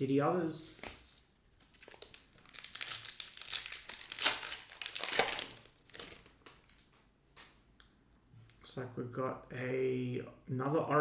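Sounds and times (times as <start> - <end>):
plastic wrapper crinkling and tearing: 0.9 - 7.0.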